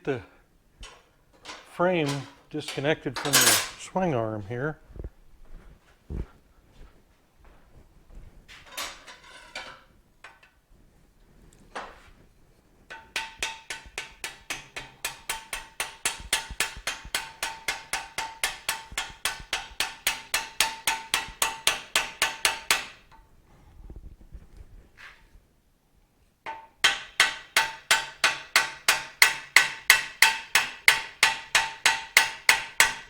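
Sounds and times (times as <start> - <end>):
hammer striking metal: 12.9 - 23.0, 26.5 - 33.0.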